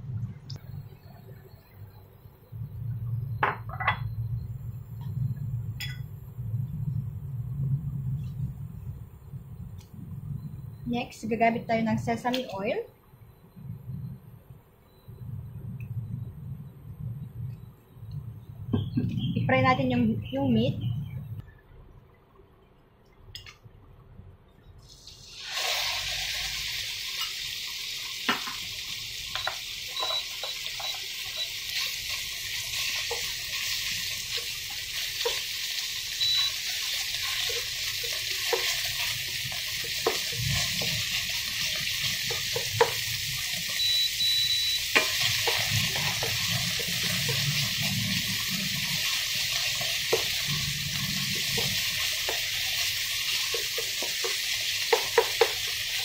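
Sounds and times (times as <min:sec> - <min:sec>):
meat sizzling in a pan: 0:24.8 - 0:56.0.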